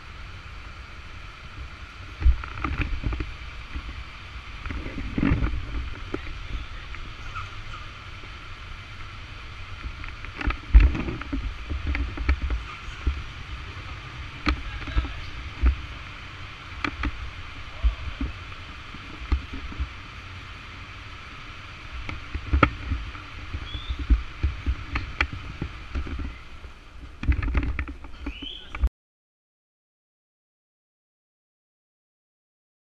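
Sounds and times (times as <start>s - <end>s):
motorcycle engine and road noise: 0.0s - 28.9s
wind buffeting microphone: 0.0s - 28.9s
sharp clicks and knocks: 16.7s - 17.2s, 27.1s - 28.8s.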